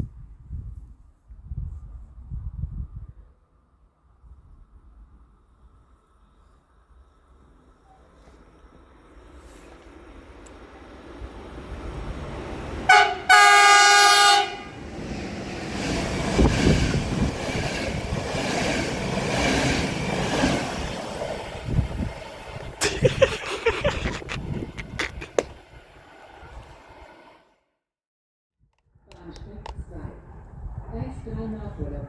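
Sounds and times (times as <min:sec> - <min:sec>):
train rushing past: 0:08.4 - 0:27.6
train horn blast: 0:12.9 - 0:14.9
train wheels clicking: 0:14.8 - 0:25.7.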